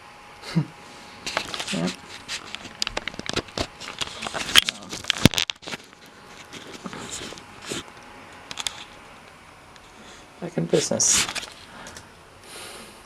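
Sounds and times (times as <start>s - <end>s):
sharp clicks and crackling handling: 1.3s - 9.8s.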